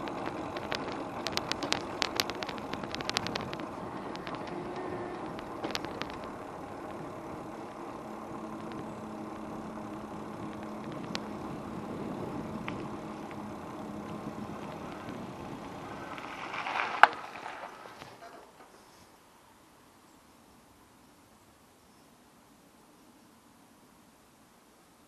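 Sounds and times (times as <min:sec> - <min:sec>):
low hum: 0:00.0 - 0:19.0
street and vehicle noise: 0:00.0 - 0:25.0.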